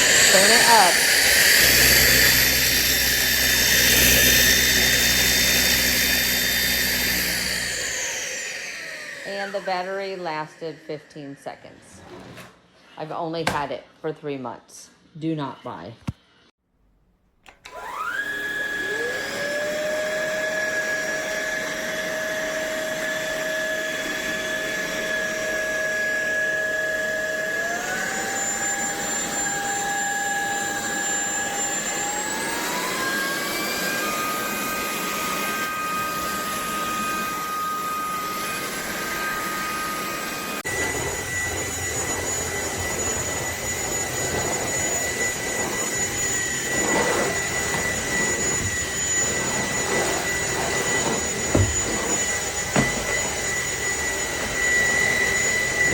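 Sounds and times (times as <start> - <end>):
stick vacuum motor whine: 0.0 - 12.4, 17.4 - 55.9
another vacuum whining: 0.0 - 13.7, 17.4 - 55.9.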